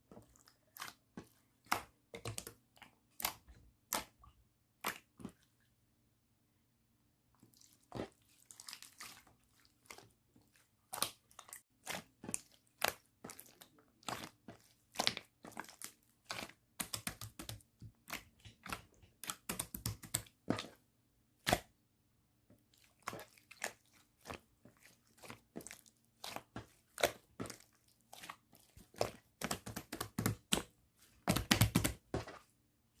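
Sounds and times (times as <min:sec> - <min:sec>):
slime squishing with clicks and pops: 0:00.2 - 0:05.5, 0:07.4 - 0:21.8, 0:22.5 - 0:32.3.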